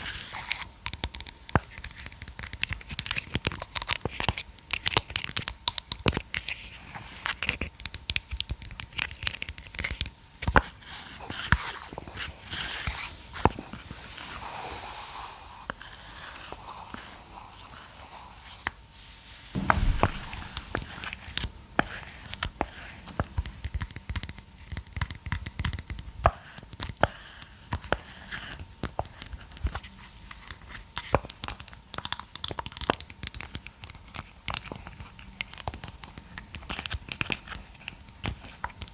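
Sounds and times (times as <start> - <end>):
loud knock: 19.6 - 21.2.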